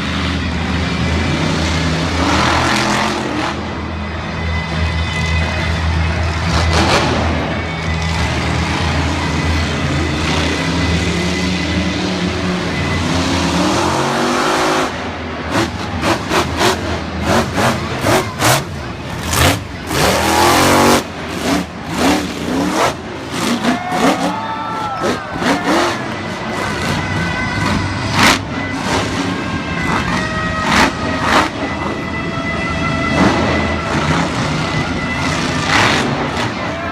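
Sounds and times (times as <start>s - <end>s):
monster truck engines revving: 0.0s - 36.9s.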